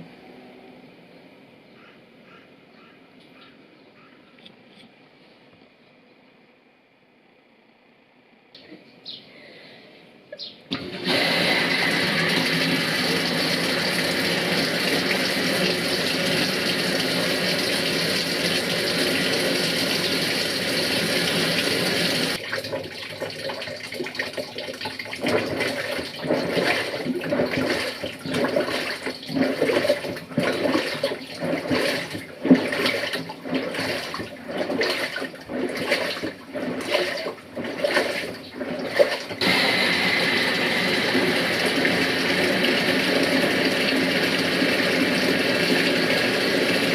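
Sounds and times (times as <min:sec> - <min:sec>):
washing machine sloshing and churning: 0:10.7 - 0:46.9
water rushing into washing machine: 0:10.7 - 0:46.9.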